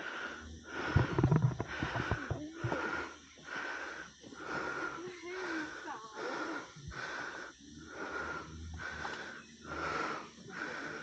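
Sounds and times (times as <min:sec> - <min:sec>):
person breathing heavily: 0:00.0 - 0:11.0.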